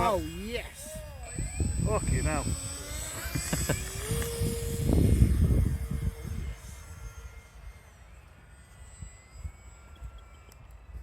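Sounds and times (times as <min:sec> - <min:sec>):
wind rumble on microphone: 0:00.0 - 0:08.0
electric ducted fan whining: 0:00.0 - 0:11.0.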